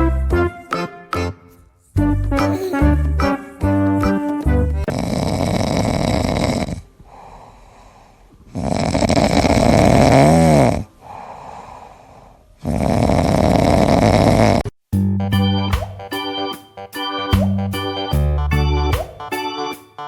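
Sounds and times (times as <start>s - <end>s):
pet snoring loudly: 4.9s - 6.9s, 8.5s - 10.9s, 12.6s - 14.6s.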